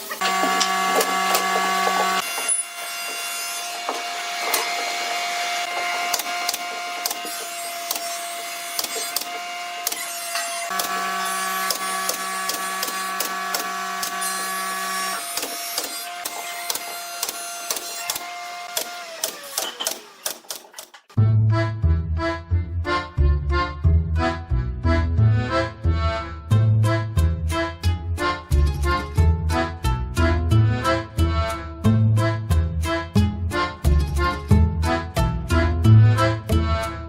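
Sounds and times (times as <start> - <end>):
power tool motor running: 0.0 - 20.8.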